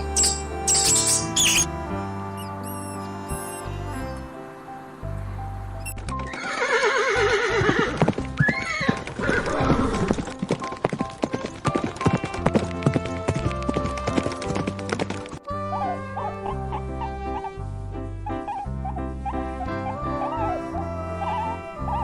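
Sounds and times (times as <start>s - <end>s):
horse whinnying: 0.0s - 1.7s, 6.2s - 10.2s
background music: 0.0s - 22.0s
hoof clops: 5.9s - 15.5s.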